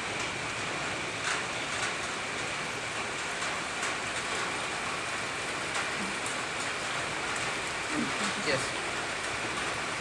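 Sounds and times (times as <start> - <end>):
steady rain falling: 0.0 - 10.0
raindrops ticking: 1.2 - 10.0.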